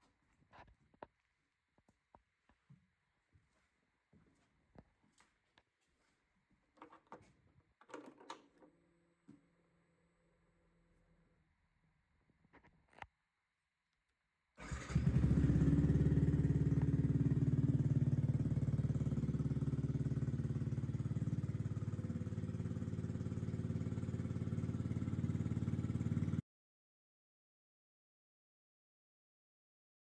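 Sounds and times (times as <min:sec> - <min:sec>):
motorcycle engine idling: 0:14.6 - 0:26.4.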